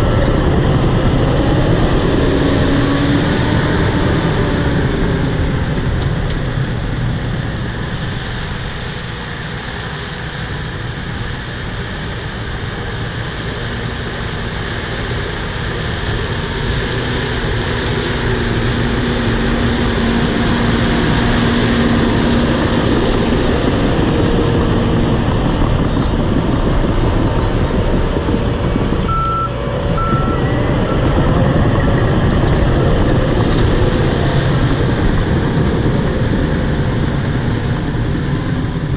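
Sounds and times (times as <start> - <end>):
bulldozer engine and tracks: 0.0 - 38.9
alarm beeps: 29.1 - 32.1.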